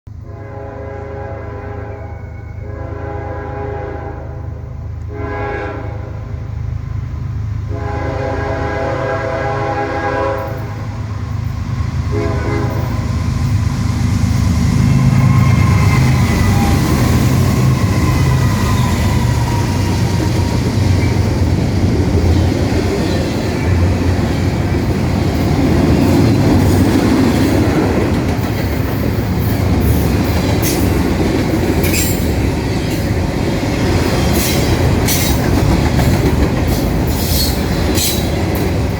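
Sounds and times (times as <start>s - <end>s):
train horn blasts: 0.1s - 6.6s, 7.6s - 11.0s, 12.1s - 13.6s
train wheels squealing on rails: 2.0s - 2.8s, 10.4s - 24.4s, 25.3s - 33.2s, 33.8s - 38.9s
diesel locomotive rumble: 2.6s - 38.9s.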